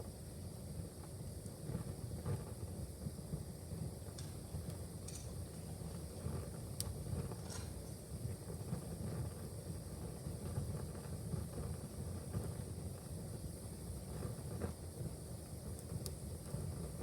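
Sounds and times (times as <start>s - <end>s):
fire flames rumbling: 1.0s - 17.0s
wood fire crackling and popping: 4.0s - 8.4s, 14.3s - 17.0s.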